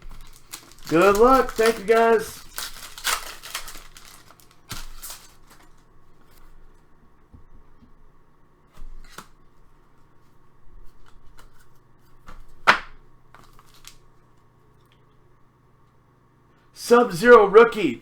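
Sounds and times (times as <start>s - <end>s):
trading cards being handled: 0.0s - 5.9s, 12.3s - 14.1s
sharp card snap: 12.6s - 13.0s.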